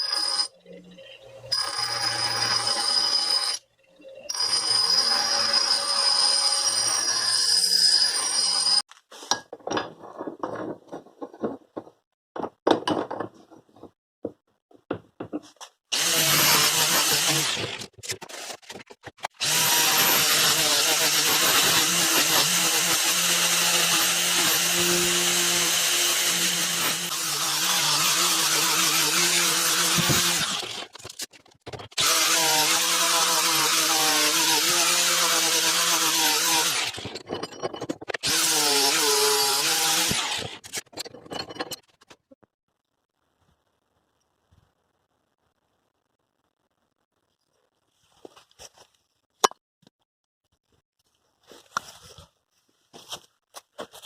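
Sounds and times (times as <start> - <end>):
clicks and scrapes: 17.6 - 19.4, 36.9 - 38.3, 40.4 - 42.4.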